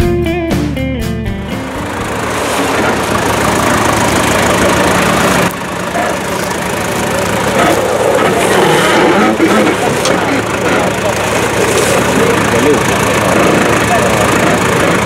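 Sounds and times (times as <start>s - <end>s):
vehicle engine running: 0.0s - 15.0s
rough uneven noise: 1.5s - 15.0s.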